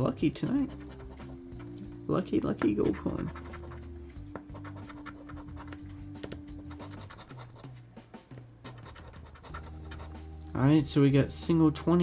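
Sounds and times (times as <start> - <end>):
soft background music: 0.0 - 12.0
coin scraping scratch card: 0.4 - 1.9, 2.8 - 7.8, 8.6 - 10.2.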